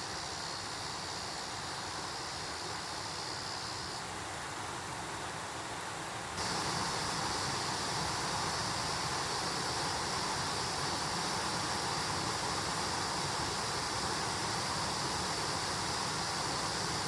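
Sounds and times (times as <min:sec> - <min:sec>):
stream rushing over rocks: 0:00.1 - 0:17.0.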